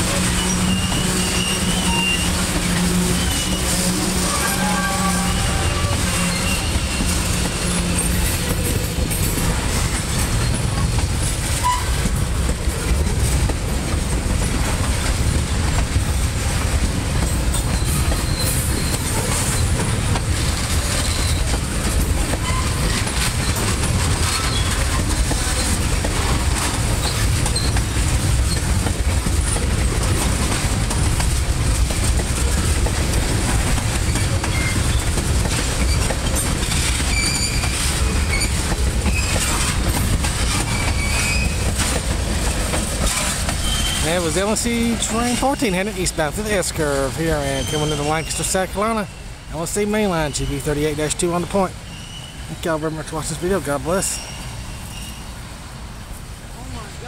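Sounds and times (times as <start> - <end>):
wheels clacking over rail joints: 0.0 - 56.8
freight train rumbling past: 0.0 - 57.0.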